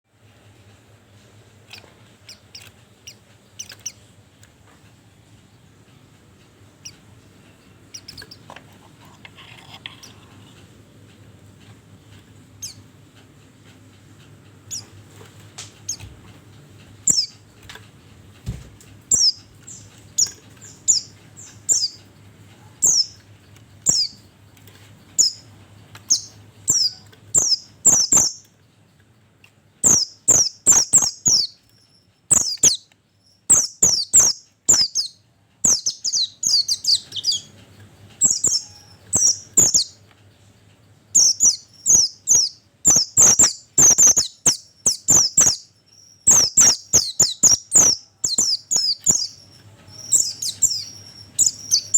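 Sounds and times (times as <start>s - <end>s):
bird sharp high chirps: 17.0s - 17.4s, 19.1s - 22.1s, 22.8s - 23.2s, 23.8s - 24.3s, 25.2s - 25.4s, 26.0s - 28.4s, 29.8s - 37.5s, 38.2s - 40.0s, 41.1s - 51.9s.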